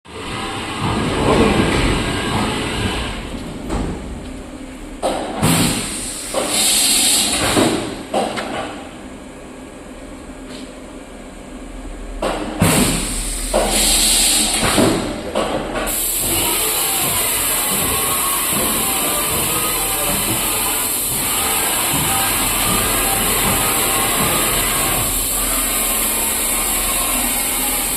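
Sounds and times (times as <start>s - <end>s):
machine hissing bursts with knocks: 5.0s - 8.7s, 12.2s - 27.9s.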